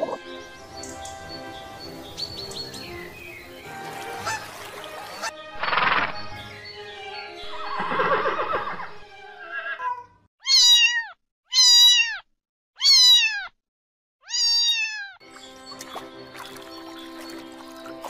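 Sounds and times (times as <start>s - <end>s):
horse whinnying: 7.7s - 11.0s
cat meowing: 9.7s - 13.6s, 14.2s - 15.2s.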